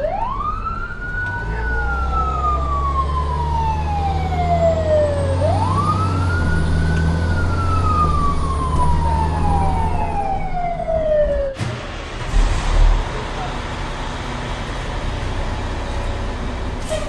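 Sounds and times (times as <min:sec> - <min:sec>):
siren wailing: 0:00.0 - 0:11.6
low engine rumble: 0:00.0 - 0:17.0.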